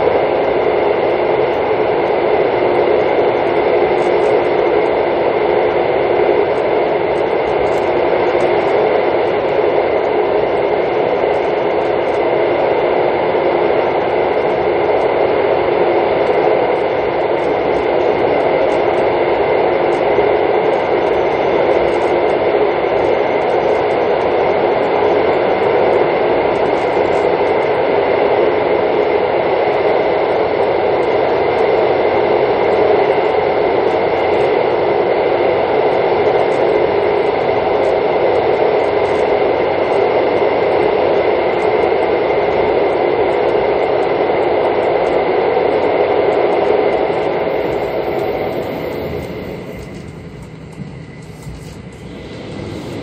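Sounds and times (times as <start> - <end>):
high whine: 0.0 - 53.0
train running rumble: 47.0 - 53.0.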